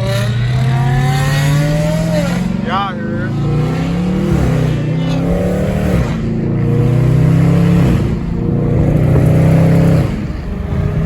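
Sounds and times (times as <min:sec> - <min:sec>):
car engine revving hard: 0:00.0 - 0:11.0.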